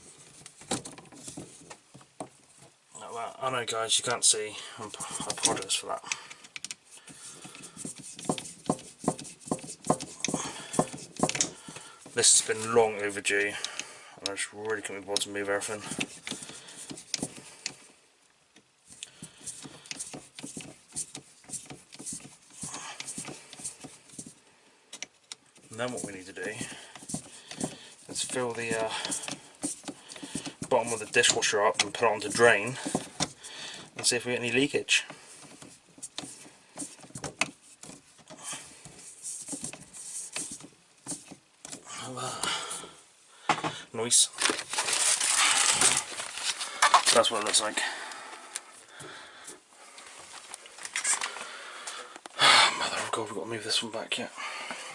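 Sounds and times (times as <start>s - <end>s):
objects being handled: 0.0s - 2.9s, 4.0s - 52.4s
plumbing parts clicking and tapping: 4.9s - 17.8s, 18.5s - 34.2s, 34.9s - 42.6s.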